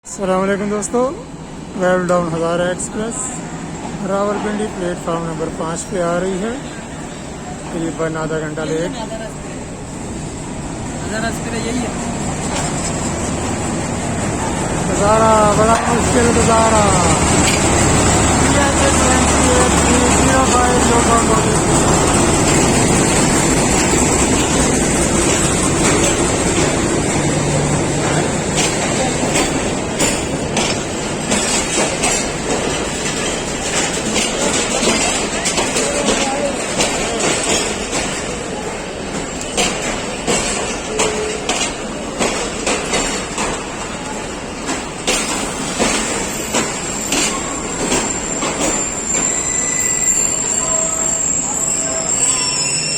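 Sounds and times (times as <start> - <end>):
train wheels rumbling on track: 0.0 - 52.9
high wheel squeal: 45.4 - 52.9.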